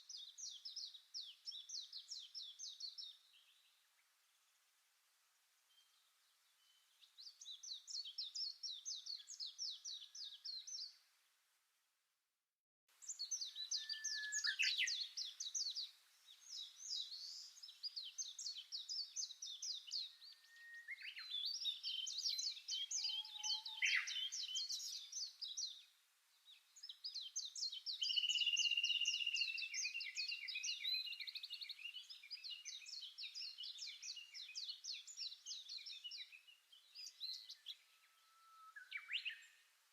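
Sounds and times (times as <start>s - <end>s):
songbirds trilling: 13.0s - 25.9s, 26.5s - 39.6s.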